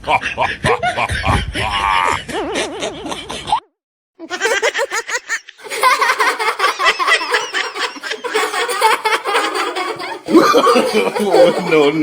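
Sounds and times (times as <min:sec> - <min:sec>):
fast high-pitched laughter: 0:04.2 - 0:12.0.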